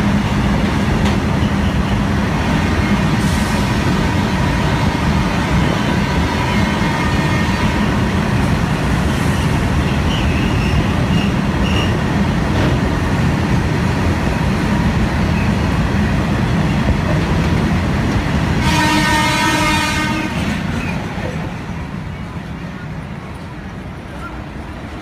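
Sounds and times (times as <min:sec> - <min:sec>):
freight train rumbling past: 0:00.0 - 0:25.0
train horn: 0:06.0 - 0:08.0, 0:18.6 - 0:20.6.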